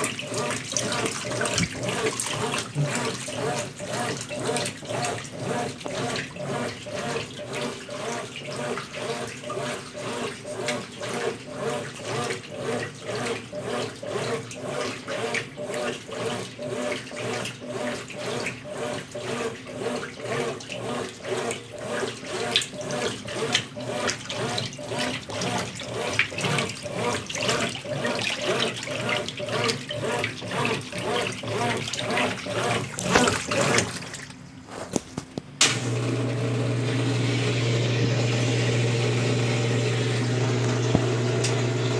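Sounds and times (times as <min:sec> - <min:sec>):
washing machine sloshing water: 0:00.0 - 0:41.9
low motor hum: 0:35.6 - 0:41.9.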